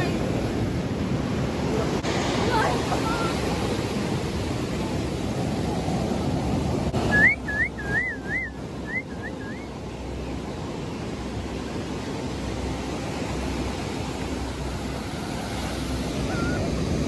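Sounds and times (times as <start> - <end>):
ocean surf: 0.0 - 17.0.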